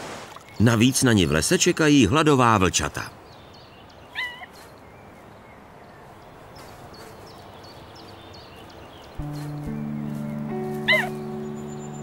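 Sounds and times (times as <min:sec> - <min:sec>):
wolf pup whimpering: 0:10.9 - 0:11.2.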